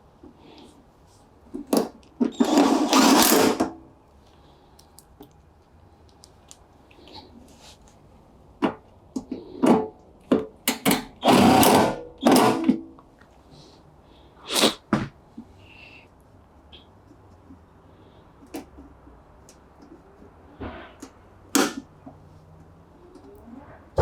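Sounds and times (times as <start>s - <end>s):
cordless drill whirring: 2.4s - 3.6s, 11.2s - 12.6s.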